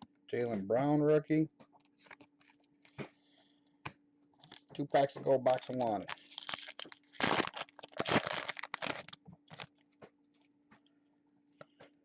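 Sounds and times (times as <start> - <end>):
foil wrapper tearing and crinkling: 4.4 - 4.7, 5.4 - 9.8.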